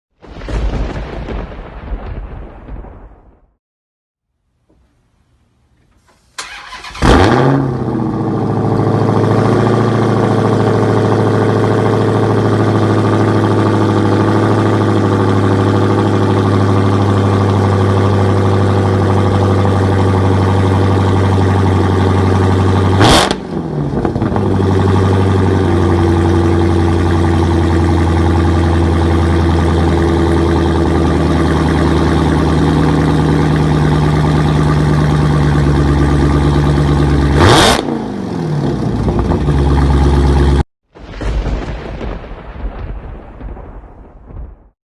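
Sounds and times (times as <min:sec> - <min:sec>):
car engine idling: 0:06.0 - 0:40.6.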